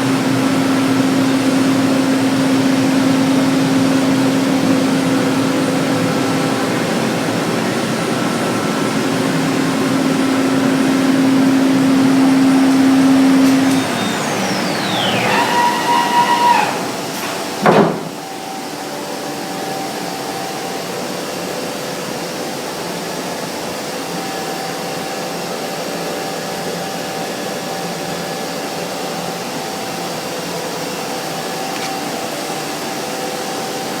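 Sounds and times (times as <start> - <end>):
cnc router whooshing hum: 0.0 - 34.0
loud knock: 15.3 - 18.2.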